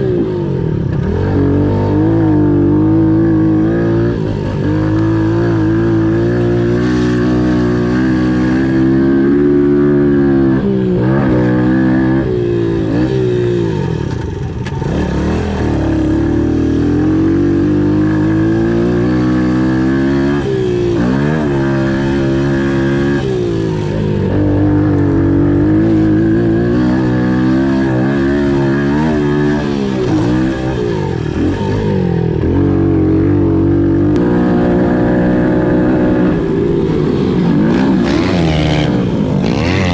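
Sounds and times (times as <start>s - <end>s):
pit bike engines revving: 0.0s - 39.9s.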